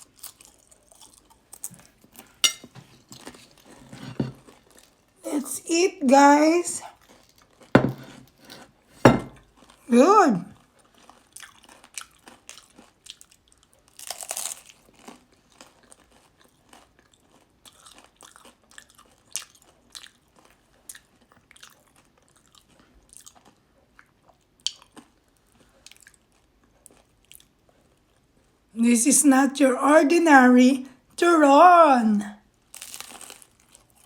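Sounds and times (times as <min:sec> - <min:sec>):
crunchy chewing: 0:00.0 - 0:02.4, 0:10.8 - 0:28.2.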